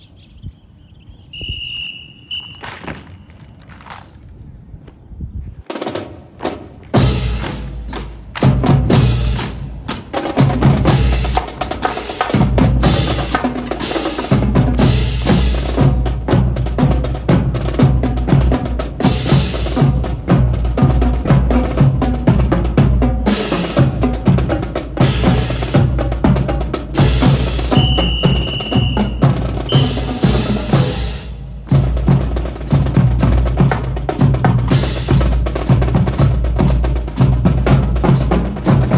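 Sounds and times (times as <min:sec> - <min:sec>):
high held tone: 0:01.4 - 0:03.4, 0:27.7 - 0:30.1
marching drum beat: 0:05.8 - 0:38.9.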